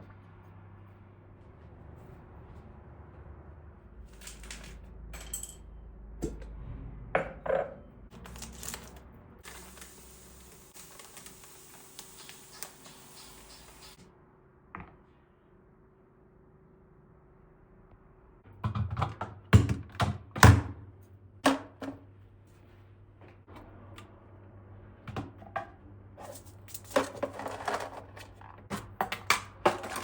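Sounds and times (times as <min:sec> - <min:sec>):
steady hiss: 0:09.4 - 0:14.0.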